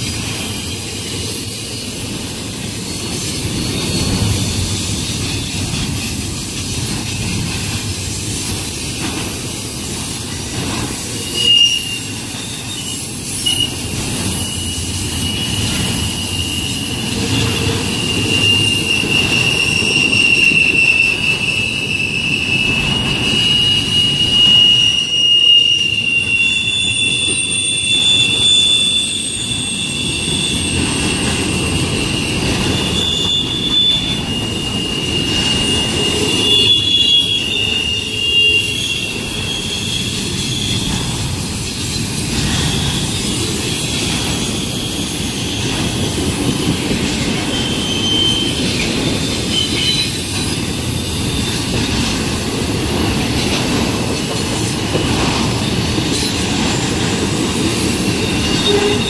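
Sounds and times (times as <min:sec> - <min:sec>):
high wavering wheel squeal: 0:00.0 - 0:59.0
steel wheels rumbling on rail: 0:00.0 - 0:59.0.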